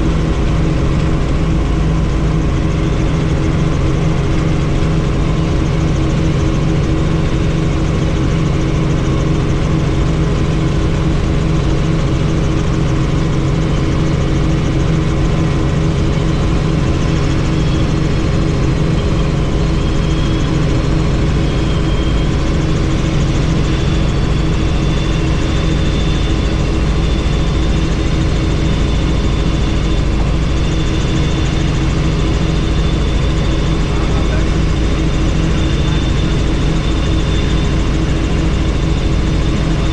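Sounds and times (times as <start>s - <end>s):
helicopter rotor and engine drone: 0.0s - 39.9s
faint high whine: 11.4s - 39.9s.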